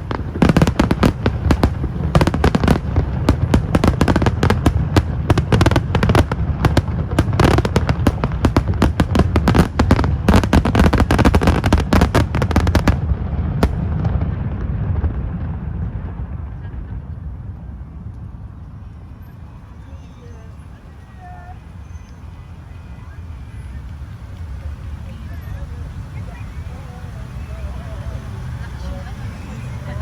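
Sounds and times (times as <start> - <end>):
low rumble: 0.0 - 19.8
fireworks bangs and crackles: 0.0 - 30.0.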